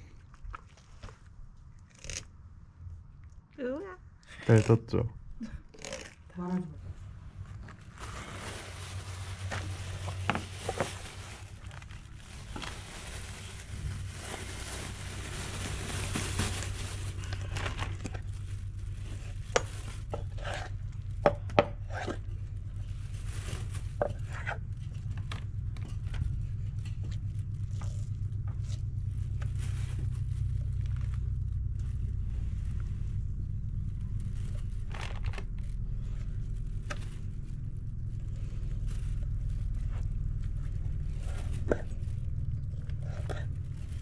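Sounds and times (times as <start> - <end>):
steady low rumble: 1.3 - 44.0
knife cutting and scraping fish: 19.2 - 20.8, 21.8 - 22.2.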